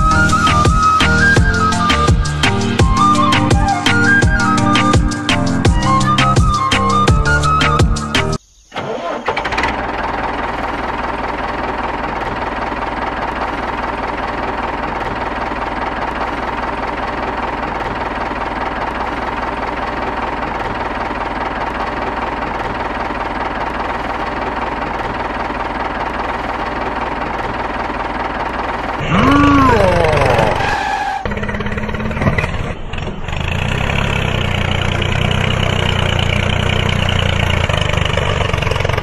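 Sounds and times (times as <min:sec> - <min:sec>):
tractor engine running: 0:00.0 - 0:39.0
engine whine: 0:08.4 - 0:39.0.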